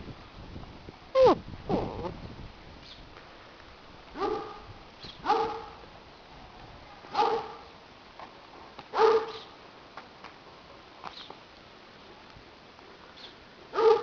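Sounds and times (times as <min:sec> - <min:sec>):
puppy barking: 0:04.2 - 0:04.6, 0:05.3 - 0:05.8, 0:07.1 - 0:07.6, 0:09.0 - 0:09.4, 0:13.8 - 0:14.0.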